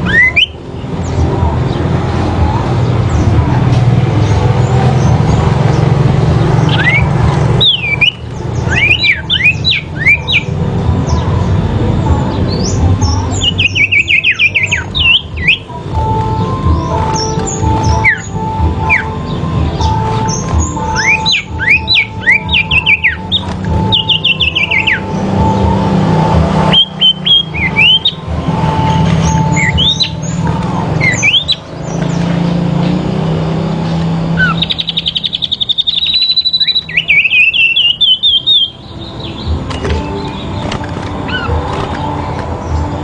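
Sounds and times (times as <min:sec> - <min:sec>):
songbirds singing: 0:00.0 - 0:43.0
fast bird trill: 0:04.3 - 0:11.4, 0:12.4 - 0:32.9, 0:34.2 - 0:42.9.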